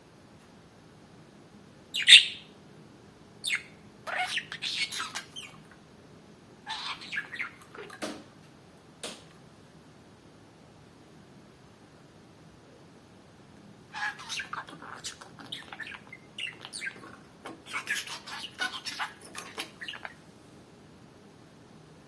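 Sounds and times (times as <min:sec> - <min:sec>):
budgerigar squawk: 0:02.0 - 0:02.4
budgerigar chirping and chattering: 0:02.0 - 0:02.5, 0:03.5 - 0:05.6, 0:06.7 - 0:07.8, 0:14.0 - 0:20.2.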